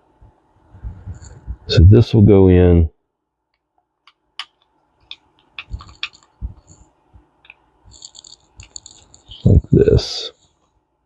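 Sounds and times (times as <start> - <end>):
small reel parts clicking: 4.0 - 9.6.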